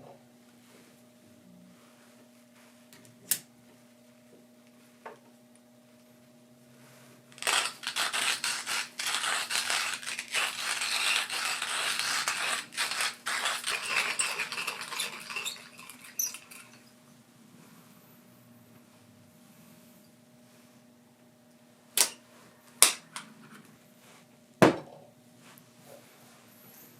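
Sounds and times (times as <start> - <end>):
coffee grinder crunching beans: 7.3 - 16.9.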